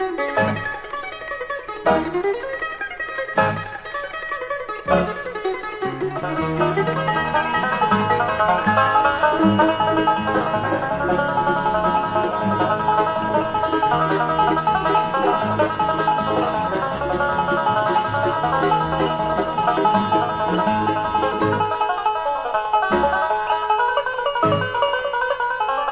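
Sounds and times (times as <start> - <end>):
walking bass line: 0.0 - 0.9, 1.9 - 2.3, 3.3 - 3.8, 4.9 - 22.0, 22.9 - 23.4, 24.1 - 24.9
banjo picking lead: 0.0 - 25.9
guitar: 0.0 - 25.9
mandolin: 0.0 - 25.9.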